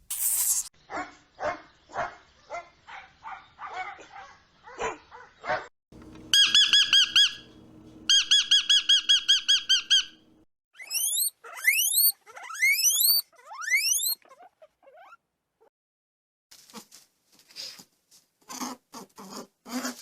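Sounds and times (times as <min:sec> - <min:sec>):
bird chirping rapidly: 0:06.2 - 0:12.1.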